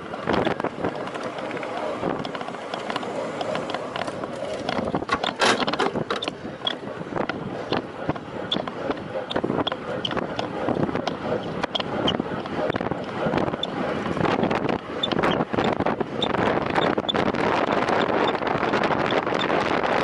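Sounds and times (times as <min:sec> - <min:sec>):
bicycle clicks and rattles: 0:00.0 - 0:07.8
bicycle tyre and road noise: 0:00.0 - 0:20.0
wind rushing over microphone: 0:00.0 - 0:20.0.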